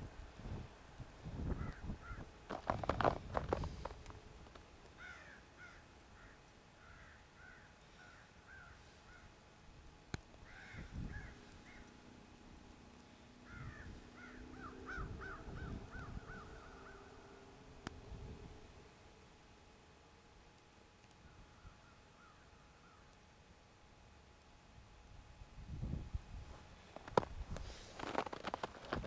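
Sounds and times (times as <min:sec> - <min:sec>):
birds calling: 0:01.5 - 0:04.0, 0:04.9 - 0:09.4, 0:10.4 - 0:12.2, 0:12.9 - 0:17.6.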